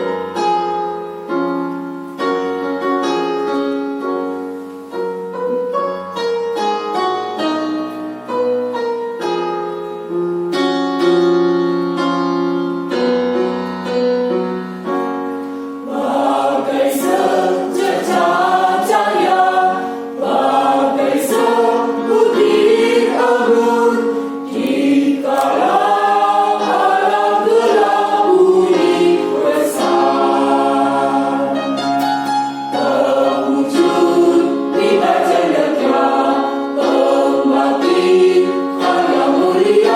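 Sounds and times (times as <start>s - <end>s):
keyboard playing: 0.0s - 39.9s
choir singing in parts: 15.8s - 39.9s.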